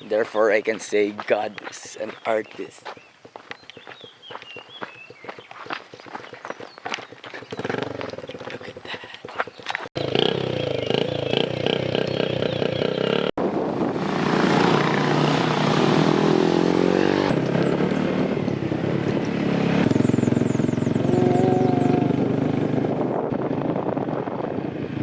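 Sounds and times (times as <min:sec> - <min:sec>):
vehicle engine running: 0:14.1 - 0:24.8.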